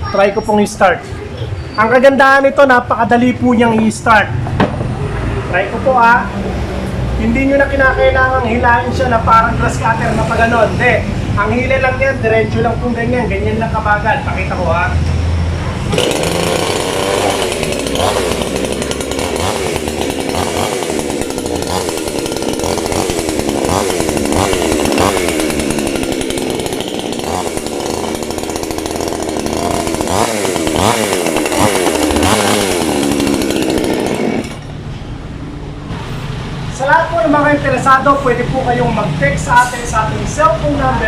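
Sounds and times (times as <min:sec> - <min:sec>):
chainsaw revving: 0:15.8 - 0:34.8.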